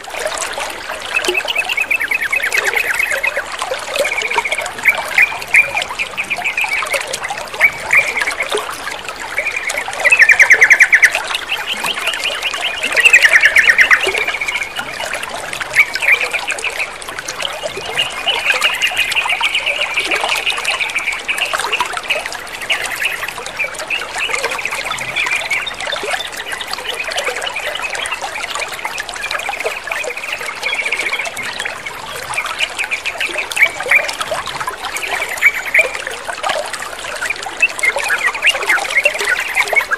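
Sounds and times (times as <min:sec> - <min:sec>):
trickling water: 0:00.0 - 0:39.9
bulbul song: 0:00.8 - 0:16.9.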